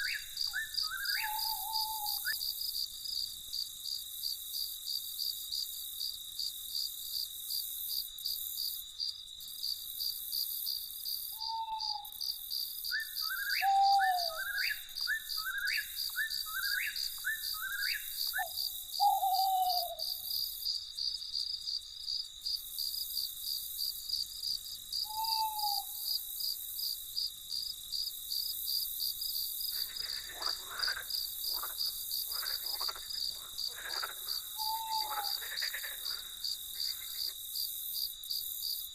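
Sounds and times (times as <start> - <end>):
croaking calls: 0.0 - 2.4, 13.2 - 20.2, 29.7 - 37.4
crickets trilling: 0.0 - 38.9
short falling hoots: 30.3 - 37.2.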